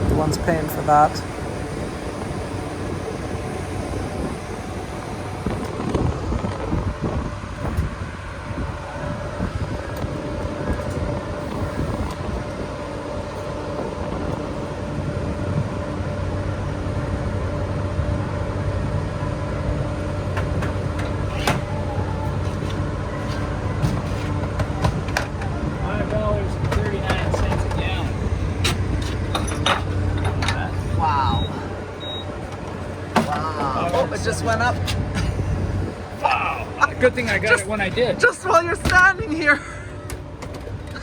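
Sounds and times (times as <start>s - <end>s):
steady tone: 0.0s - 20.3s
trucks idling: 0.0s - 41.0s.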